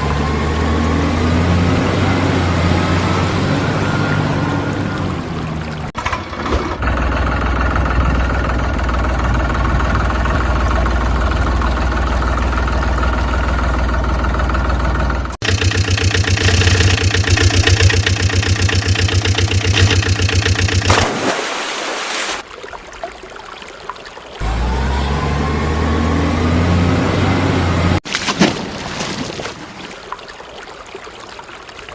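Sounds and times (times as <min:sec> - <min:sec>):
vehicle engine running: 0:00.0 - 0:21.2, 0:24.4 - 0:28.0.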